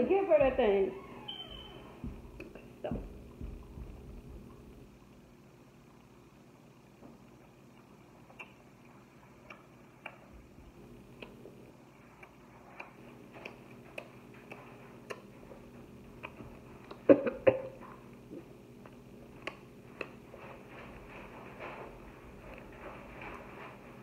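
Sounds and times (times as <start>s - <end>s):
person chewing: 7.7s - 8.6s, 18.8s - 20.2s.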